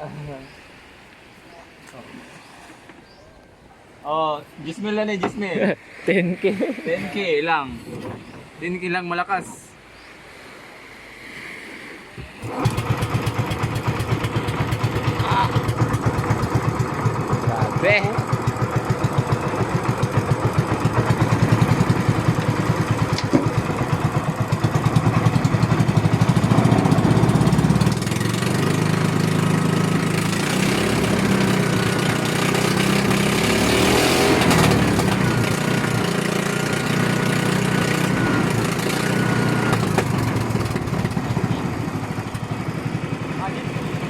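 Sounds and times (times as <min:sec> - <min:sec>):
boat engine running: 0:12.2 - 0:44.0.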